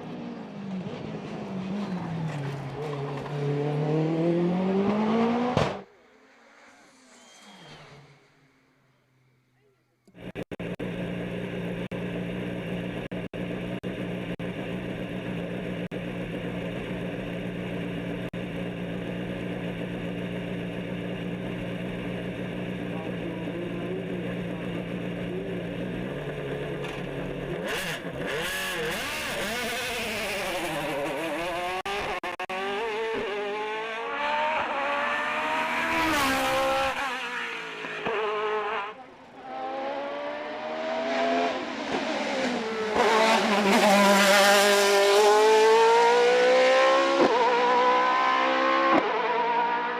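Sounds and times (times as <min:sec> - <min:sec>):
race car engine revving: 0:00.9 - 0:05.9, 0:10.1 - 0:49.9
race car engine idling: 0:10.1 - 0:27.6.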